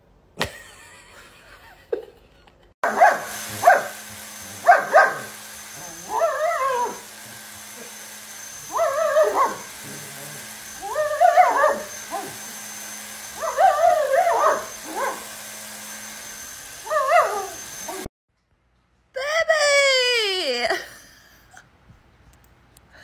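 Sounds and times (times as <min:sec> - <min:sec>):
dog whining and yipping: 0:02.9 - 0:03.9, 0:04.5 - 0:15.4, 0:16.8 - 0:18.1.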